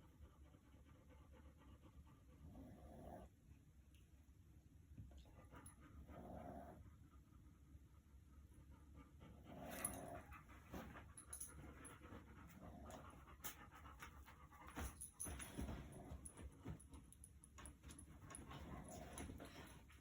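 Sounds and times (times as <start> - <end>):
dog snoring faintly: 2.2 - 3.4, 5.2 - 7.1, 9.2 - 10.4.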